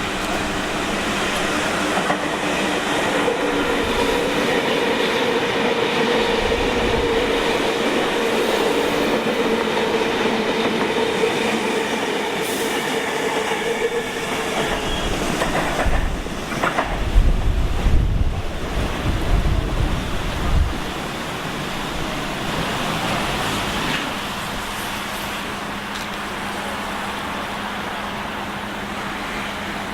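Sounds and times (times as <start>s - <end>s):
train wheels rumbling on rails: 0.0s - 29.9s
train whine: 0.0s - 29.9s.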